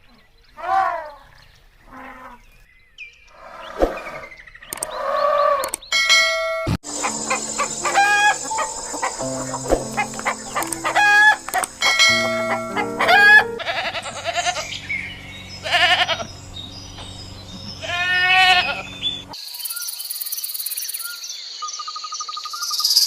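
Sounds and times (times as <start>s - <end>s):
hens clucking: 6.8s - 14.6s
background music: 6.8s - 14.7s
roosters crowing: 6.9s - 14.8s, 15.4s - 16.4s, 17.5s - 19.4s.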